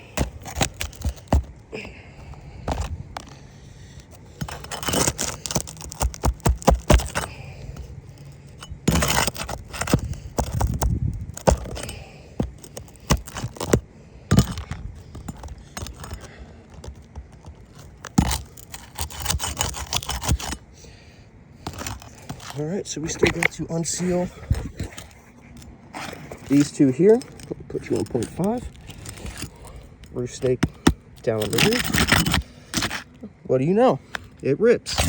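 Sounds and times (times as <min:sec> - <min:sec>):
metal tools clinking on shingles: 0:00.0 - 0:35.0.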